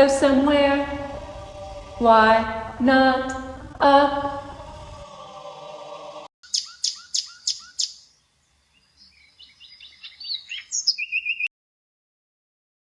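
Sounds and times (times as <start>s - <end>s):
held musical tone: 0.0s - 6.3s
bird chirping: 6.4s - 11.5s
bird twittering: 6.4s - 11.5s.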